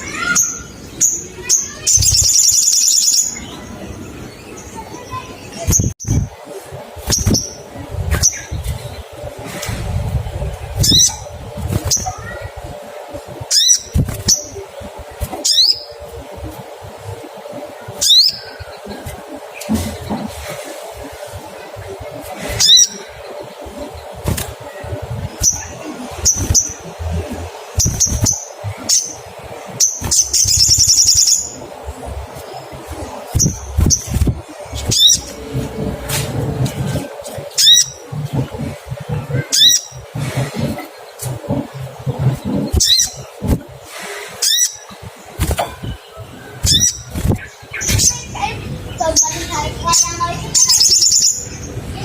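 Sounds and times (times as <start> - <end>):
bird sharp high chirps: 0.0 - 3.6, 7.0 - 8.6, 27.8 - 31.7, 49.0 - 51.7
bird chirping sharp high calls: 0.0 - 3.8, 7.0 - 8.7, 18.0 - 19.0, 22.4 - 27.0, 27.7 - 31.8, 32.4 - 35.4, 45.7 - 51.8
bird rapid trill: 7.0 - 8.6, 25.3 - 27.0, 27.7 - 31.7, 33.3 - 35.4, 46.6 - 48.4.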